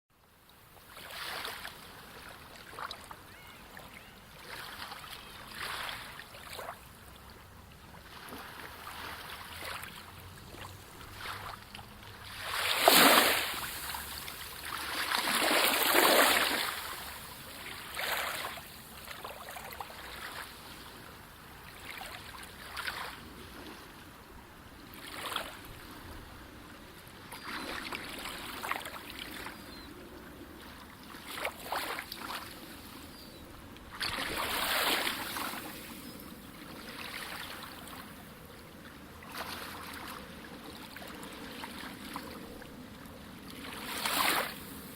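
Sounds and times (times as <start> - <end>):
sea waves splashing: 4.4 - 7.3, 7.9 - 23.9, 34.0 - 38.2, 43.5 - 44.9.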